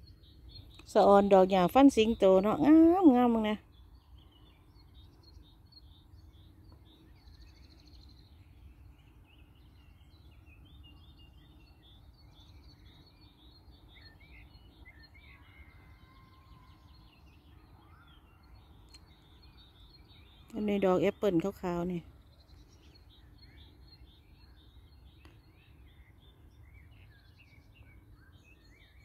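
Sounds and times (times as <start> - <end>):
small birds twittering: 0.0 - 29.0.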